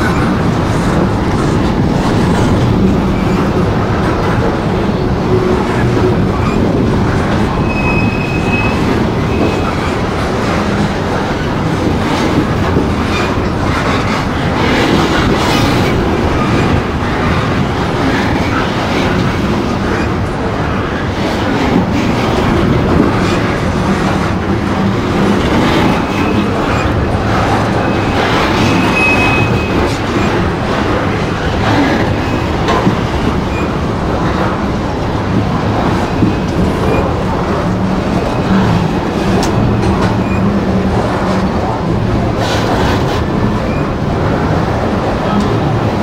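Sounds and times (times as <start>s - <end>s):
wheel squeals: 7.6s - 10.0s, 25.8s - 30.4s.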